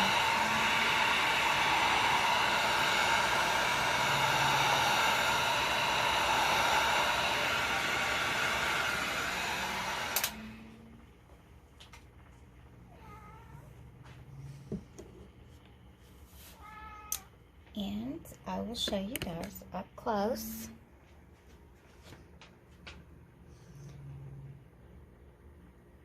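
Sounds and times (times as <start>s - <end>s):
heat gun blowing: 0.0s - 10.8s
heat gun switch click: 10.1s - 10.4s.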